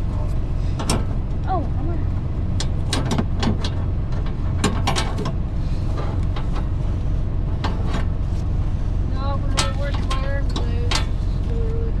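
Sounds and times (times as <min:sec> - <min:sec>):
low engine rumble: 0:00.0 - 0:12.0
sharp clicks and knocks: 0:02.6 - 0:05.4.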